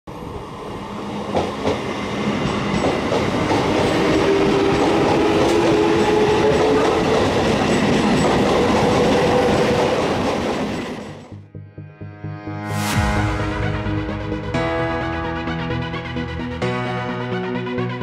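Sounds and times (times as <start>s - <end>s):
electric train passing: 0.1s - 11.3s
wheels clacking over rail joints: 1.3s - 11.2s.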